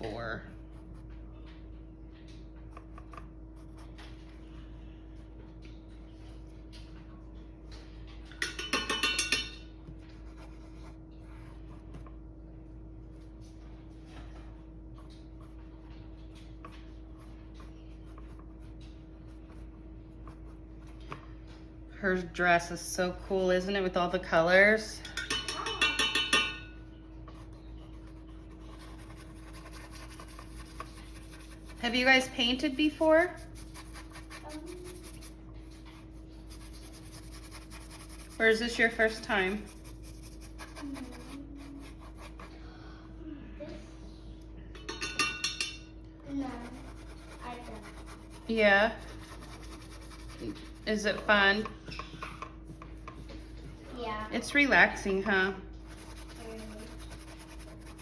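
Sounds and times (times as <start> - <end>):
steady low hum: 0.0 - 58.0
paintbrush clinking in glass cup: 8.4 - 9.7, 25.0 - 26.8, 44.8 - 45.8
faint scratching: 27.3 - 42.5, 46.3 - 51.8, 52.6 - 58.0.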